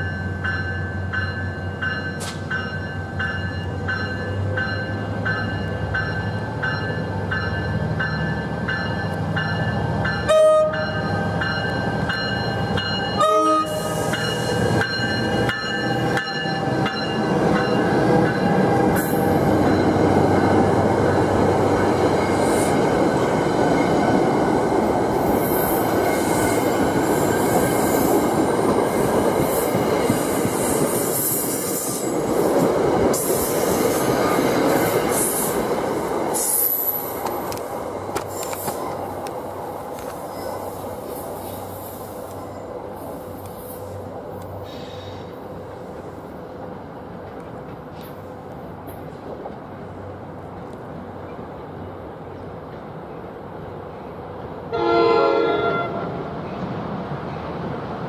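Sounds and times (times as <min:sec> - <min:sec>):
train rumbling past: 0:00.0 - 0:58.0
train horn toots: 0:10.2 - 0:11.3, 0:13.1 - 0:14.3, 0:54.7 - 0:56.2.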